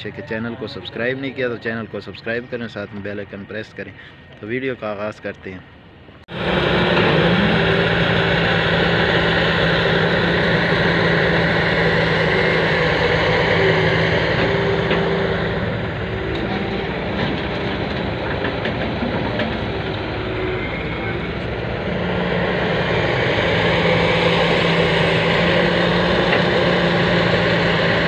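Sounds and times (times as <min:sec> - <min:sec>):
excavator diesel engine humming: 0:05.8 - 0:28.0.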